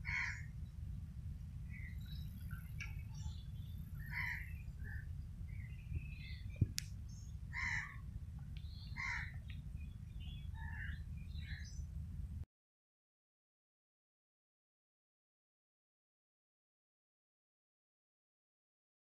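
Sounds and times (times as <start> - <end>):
birds calling: 0.0 - 0.8, 1.6 - 11.9
low rumble: 0.0 - 12.4.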